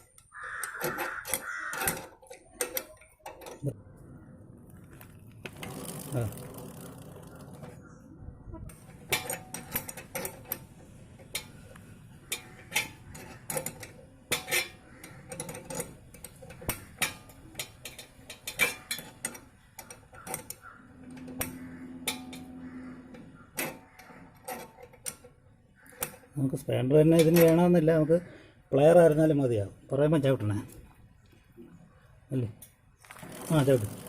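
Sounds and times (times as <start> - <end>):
spanner clicking on metal nut: 0.0 - 3.7, 8.7 - 26.3, 27.1 - 27.8
low steady hum: 20.8 - 25.7.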